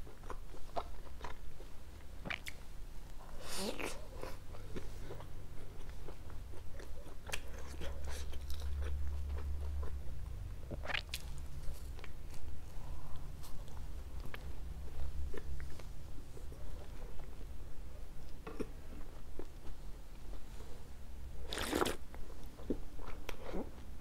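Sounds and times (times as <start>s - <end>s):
chewing pizza: 0.0s - 2.6s, 3.6s - 17.5s
mouth clicks and wet smacks: 2.2s - 2.6s.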